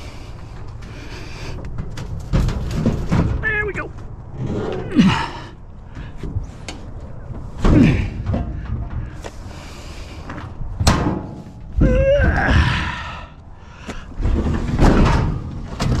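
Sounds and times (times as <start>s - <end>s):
heavy knocks and thuds: 1.9s - 3.5s.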